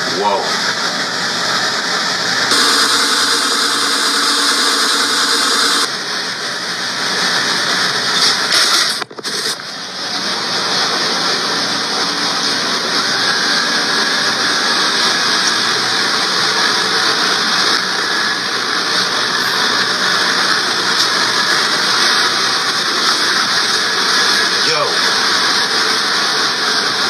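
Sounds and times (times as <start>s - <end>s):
robot vacuum whirring: 2.5s - 5.9s.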